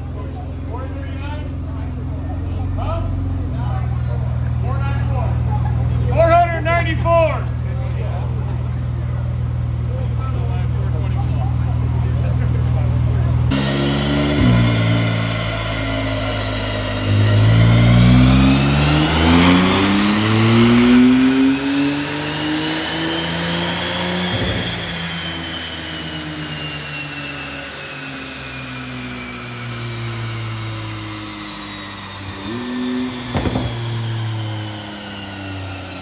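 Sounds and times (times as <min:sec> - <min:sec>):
car engine revving on a dyno: 0:00.0 - 0:06.4, 0:07.4 - 0:36.0
sharp exhaust crack: 0:11.7 - 0:26.6, 0:30.4 - 0:35.9.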